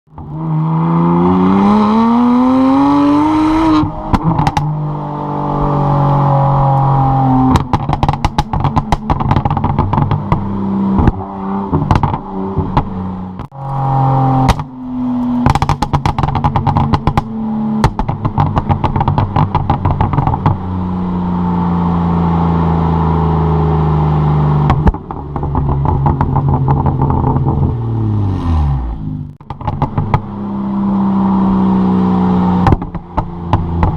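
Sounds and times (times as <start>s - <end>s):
exhaust pops and crackles: 0.1s - 0.4s, 3.8s - 4.7s, 6.7s - 20.7s, 24.6s - 27.9s, 29.2s - 30.4s, 32.6s - 33.9s
car engine revving hard: 0.2s - 33.9s.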